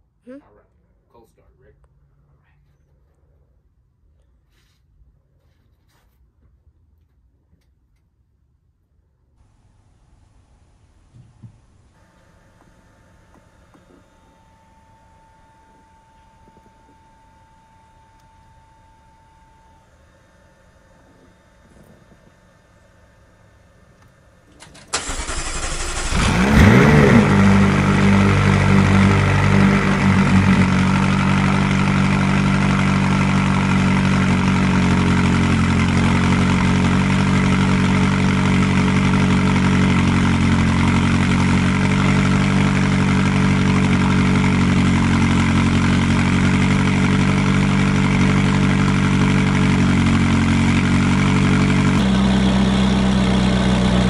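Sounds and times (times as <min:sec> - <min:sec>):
car engine starting and idling: 0:24.5 - 0:54.0.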